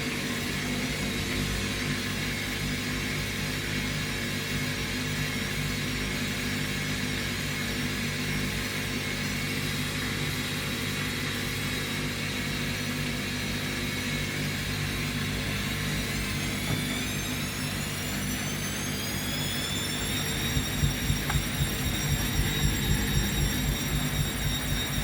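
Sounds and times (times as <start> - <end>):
washing machine spin cycle hum: 0.0 - 25.0
rising motor whine: 15.2 - 25.0.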